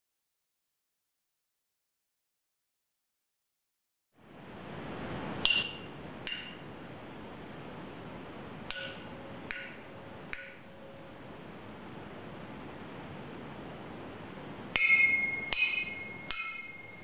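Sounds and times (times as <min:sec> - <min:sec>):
steady hiss: 0:04.2 - 0:17.0.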